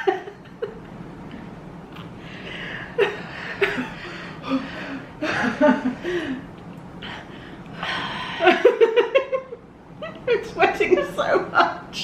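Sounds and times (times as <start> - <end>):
women gasping and breathing hard: 5.9 - 8.4.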